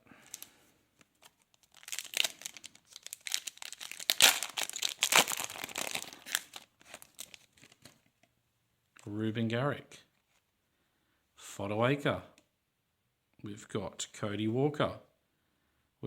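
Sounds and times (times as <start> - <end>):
wrapper tearing and crinkling: 1.1 - 8.0.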